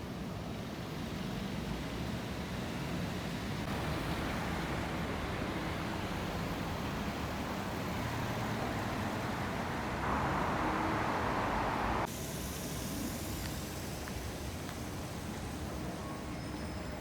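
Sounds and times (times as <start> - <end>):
storm wind and rain: 2.3 - 12.1.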